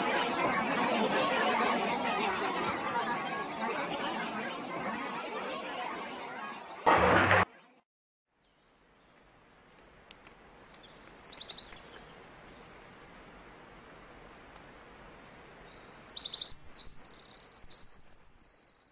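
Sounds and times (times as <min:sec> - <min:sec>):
songbird chirps and trills: 0:08.4 - 0:18.9.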